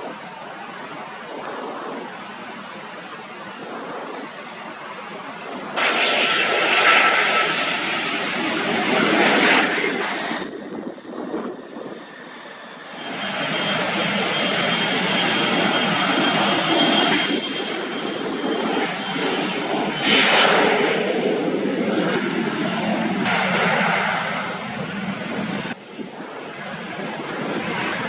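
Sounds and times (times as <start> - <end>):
high engine whine: 0.0 - 28.0
jet engines rushing: 0.0 - 28.0.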